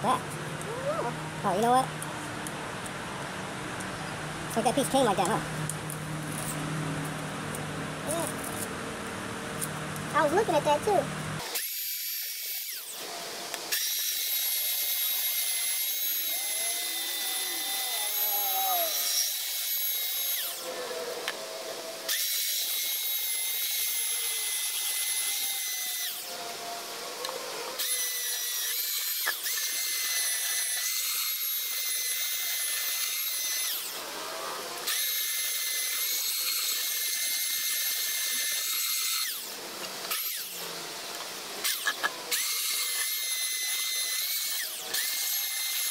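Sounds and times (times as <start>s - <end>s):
power tool whining: 5.2s - 45.9s.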